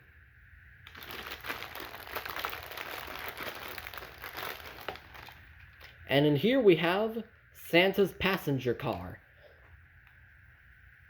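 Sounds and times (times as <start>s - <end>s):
packaging crinkling and rustling: 0.9s - 6.0s.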